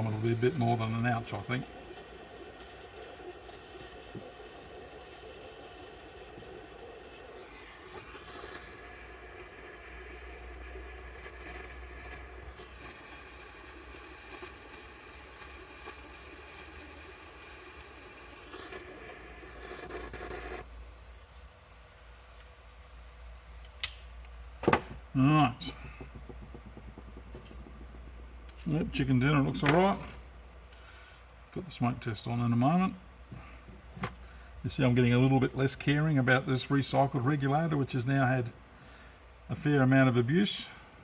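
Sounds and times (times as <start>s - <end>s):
hot-air soldering tool hissing: 0.0s - 24.3s, 25.2s - 30.2s.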